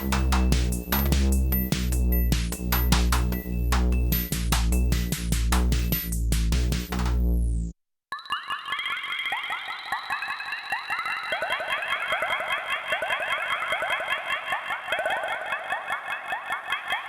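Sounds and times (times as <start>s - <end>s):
electronic drum hits: 0.0s - 7.4s.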